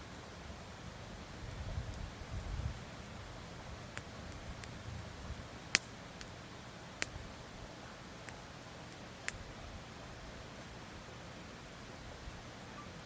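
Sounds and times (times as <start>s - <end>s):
low steady fire hiss: 0.0s - 13.0s
campfire pops: 3.9s - 6.4s, 7.0s - 7.2s, 8.2s - 9.5s.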